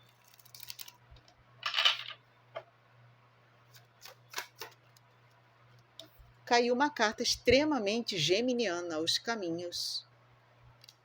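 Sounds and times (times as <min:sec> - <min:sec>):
cards snapping and clicking: 0:04.0 - 0:04.8.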